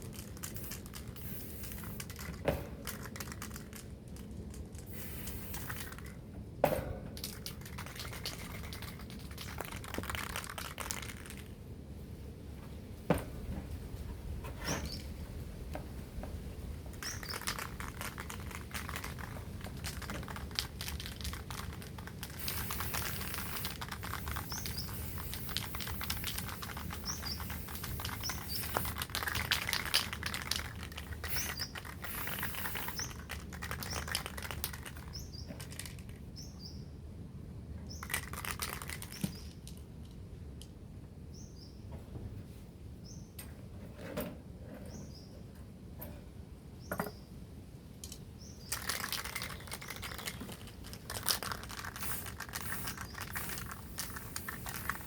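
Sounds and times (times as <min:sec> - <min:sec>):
aerosol spray can hissing: 0:00.0 - 0:02.3, 0:04.9 - 0:06.1, 0:17.0 - 0:34.9, 0:49.4 - 0:55.0
small bird chirping: 0:14.7 - 0:15.2, 0:17.0 - 0:19.3, 0:19.9 - 0:37.0, 0:37.9 - 0:39.6, 0:41.3 - 0:41.9, 0:48.4 - 0:55.0.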